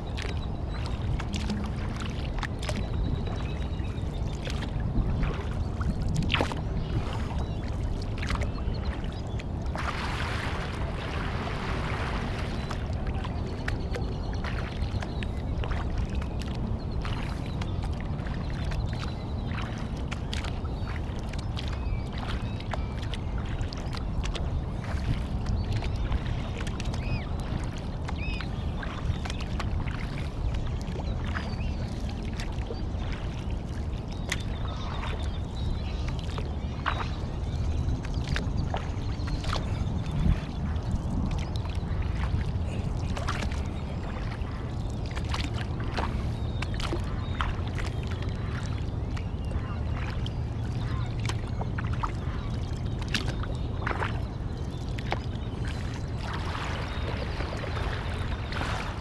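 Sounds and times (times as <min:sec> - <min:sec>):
water splashing and dripping: 0:00.0 - 0:03.5, 0:04.3 - 0:59.0
steady low rumble: 0:00.0 - 0:59.0.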